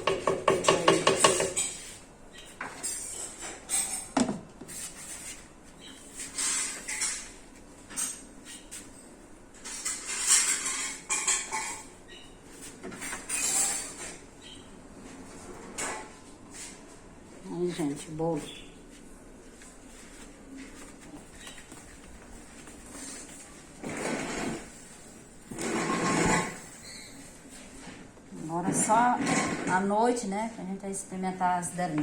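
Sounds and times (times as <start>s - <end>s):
pots and pans clattering: 9.7s - 11.9s
knocks scrapes and clinks: 25.5s - 26.8s.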